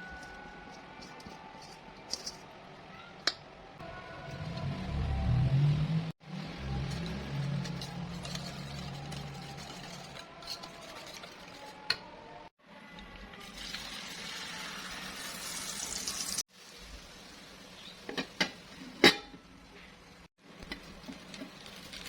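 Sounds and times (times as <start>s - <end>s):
batter sizzling in hot oil: 13.4s - 18.8s, 20.6s - 22.0s.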